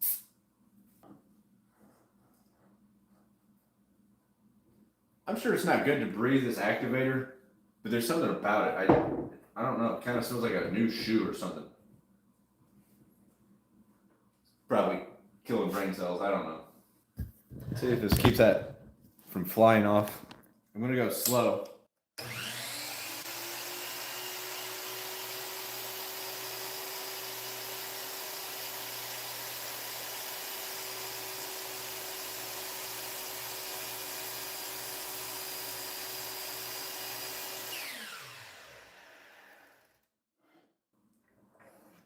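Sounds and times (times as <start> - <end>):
miter saw cutting plywood: 22.2 - 40.1.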